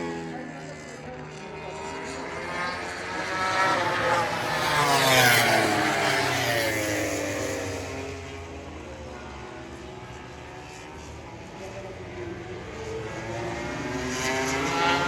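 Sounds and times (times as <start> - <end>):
race motorcycle passing: 0.0 - 8.4, 12.8 - 15.0.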